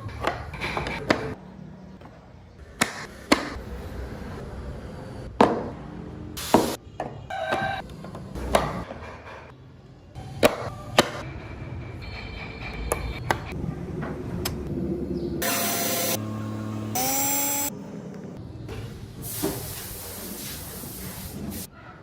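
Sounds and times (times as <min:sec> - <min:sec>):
power tool running: 0:15.4 - 0:17.7.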